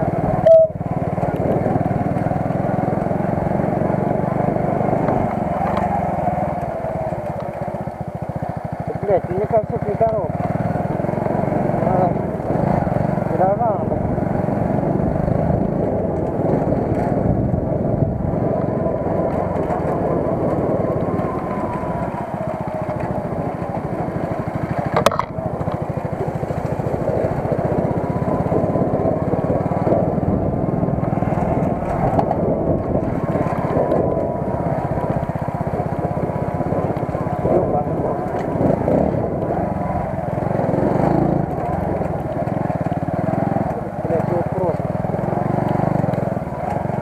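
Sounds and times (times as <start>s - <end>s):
faint whine: 0.0s - 9.2s
small vehicle engine running: 0.0s - 47.0s.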